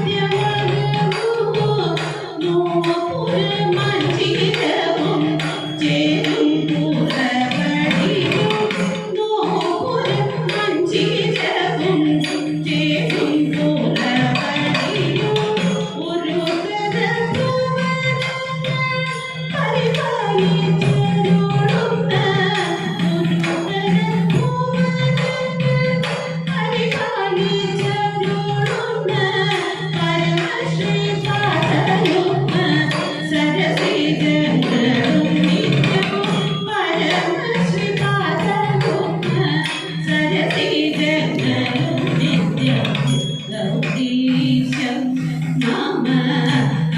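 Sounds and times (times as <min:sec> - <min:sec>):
voices singing devotional melody: 0:00.0 - 0:46.9
steady rhythmic beat: 0:31.6 - 0:46.9.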